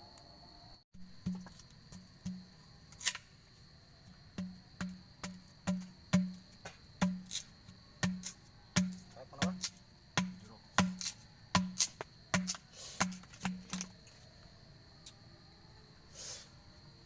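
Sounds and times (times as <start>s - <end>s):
insects chirring: 0.0s - 17.0s
knife chopping on wooden board: 8.0s - 13.9s.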